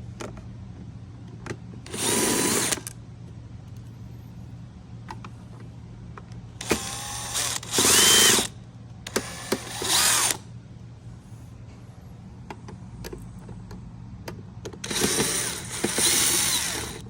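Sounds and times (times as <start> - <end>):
cordless drill driver running: 1.9 - 3.0, 6.6 - 10.4, 14.8 - 17.0
small clicks of bit and screws: 12.5 - 17.0.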